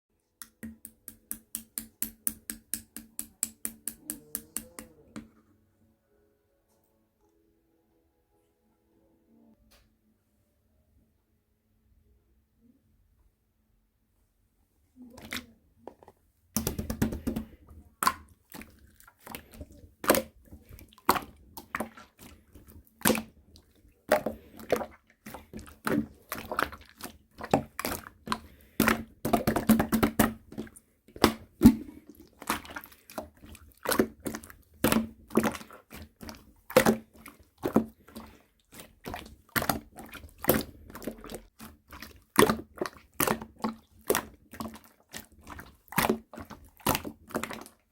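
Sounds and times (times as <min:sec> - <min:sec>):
slime squished by hand: 0:16.6 - 0:47.9.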